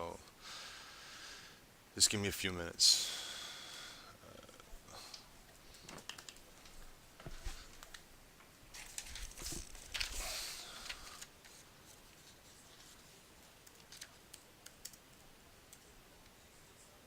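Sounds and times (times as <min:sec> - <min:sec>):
rustling: 0:08.7 - 0:14.4.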